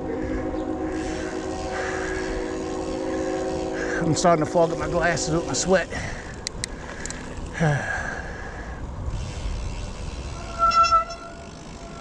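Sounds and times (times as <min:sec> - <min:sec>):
wind noise: 0:00.0 - 0:12.0
bicycle tyres on wet trail: 0:00.2 - 0:12.0
disc brakes squeaking: 0:09.2 - 0:12.0.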